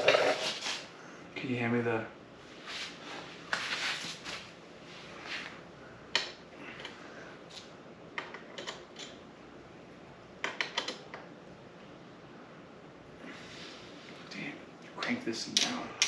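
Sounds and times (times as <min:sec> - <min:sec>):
air conditioner hum: 0:00.0 - 0:16.0
metal tools clicking and tapping: 0:08.2 - 0:09.2, 0:10.4 - 0:11.1, 0:15.5 - 0:16.0.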